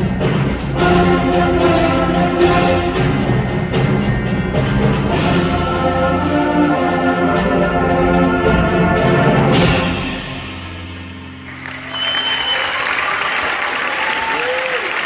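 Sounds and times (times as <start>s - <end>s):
concert band playing: 0.0s - 15.0s
audience applause: 11.4s - 15.0s.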